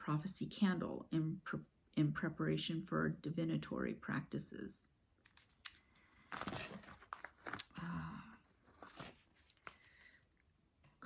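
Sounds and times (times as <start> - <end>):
packaging crinkling: 5.3 - 7.7, 8.6 - 9.9.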